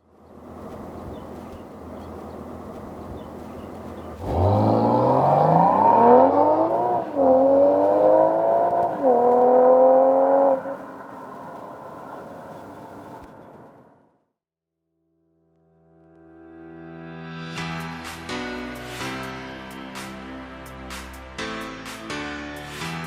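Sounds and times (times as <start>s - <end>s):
car engine idling: 0.1s - 14.0s
car engine revving: 0.4s - 13.9s.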